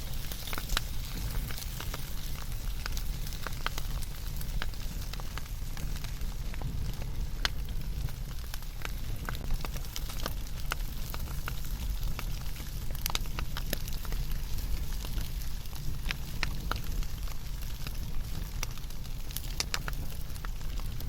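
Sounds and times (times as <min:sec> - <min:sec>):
campfire crackling: 0:00.0 - 0:21.0
low steady rumble: 0:00.0 - 0:21.0.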